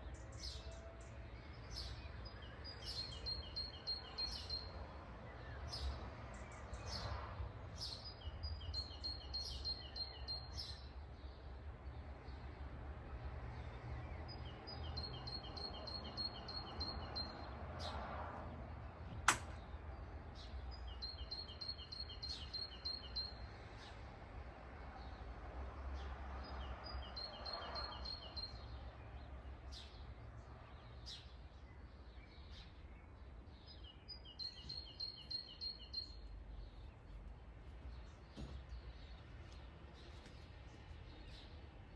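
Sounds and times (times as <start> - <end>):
songbird singing: 0.0 - 25.3, 26.0 - 41.9
sharp click: 19.2 - 19.6.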